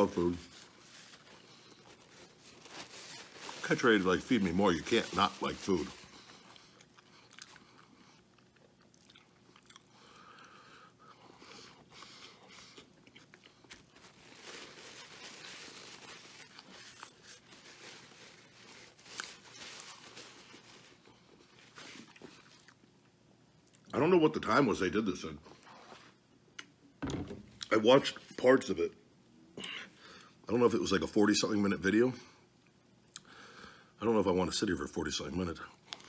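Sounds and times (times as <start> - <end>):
faint chewing and biting: 5.7 - 23.9.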